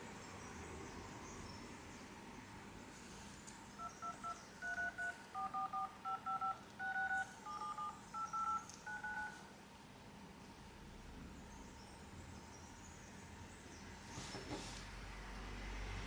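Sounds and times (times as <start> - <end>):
phone dial-pad touch tones: 3.8 - 9.5.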